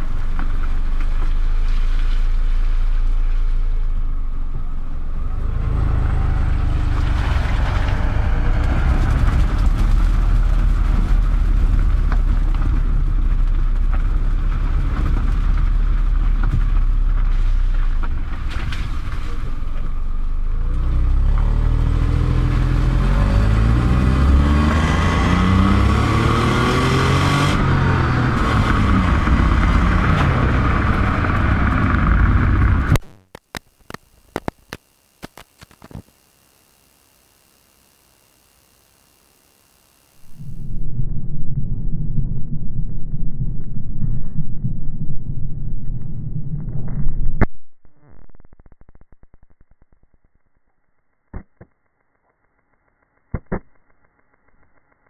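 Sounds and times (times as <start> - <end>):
road and wind noise: 0.0 - 33.6, 40.2 - 47.6
car engine rumbling: 0.0 - 35.1, 40.2 - 50.2.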